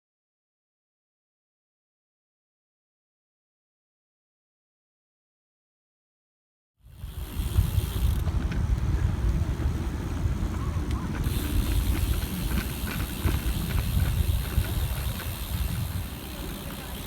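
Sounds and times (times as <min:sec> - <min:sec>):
road hiss: 0:06.9 - 0:08.4
wind buffeting microphone: 0:07.0 - 0:17.0.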